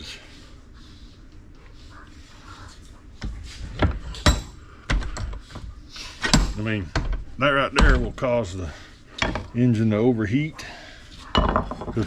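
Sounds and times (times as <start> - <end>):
hard parts knocking on workbench: 11.4 - 12.0.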